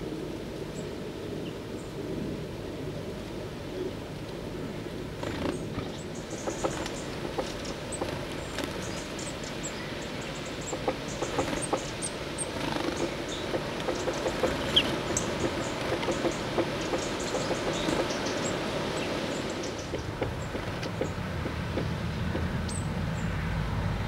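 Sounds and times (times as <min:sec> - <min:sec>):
birds pecking and scrabbling: 0:05.2 - 0:22.8.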